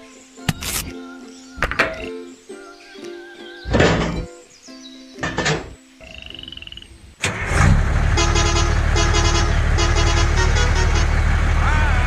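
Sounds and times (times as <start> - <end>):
vehicle engine running: 7.2 - 12.0.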